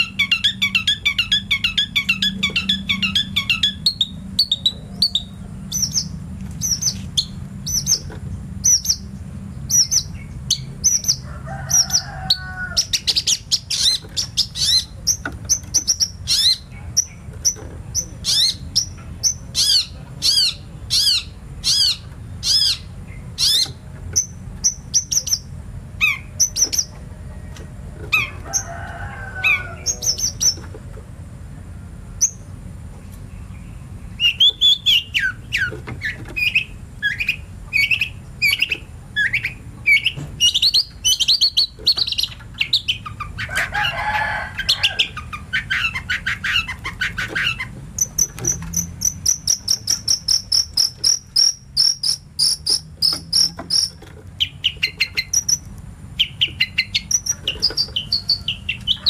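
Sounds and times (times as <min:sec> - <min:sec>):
steady low rumble: 0:00.0 - 0:12.0
songbird singing high chirps: 0:00.0 - 0:27.0, 0:29.4 - 0:30.7, 0:33.1 - 0:43.5, 0:44.7 - 0:59.0
low bird calls: 0:00.0 - 0:30.7.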